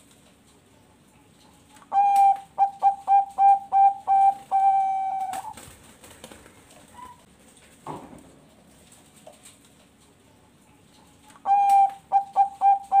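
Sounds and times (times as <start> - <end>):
dove cooing: 1.2 - 5.6, 11.4 - 13.0.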